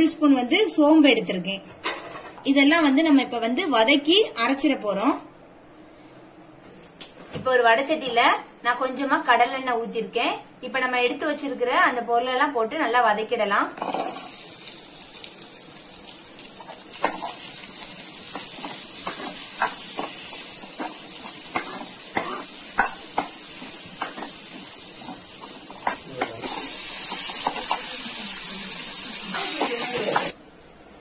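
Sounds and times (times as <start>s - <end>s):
vegetables sizzling in hot oil: 13.8s - 30.4s.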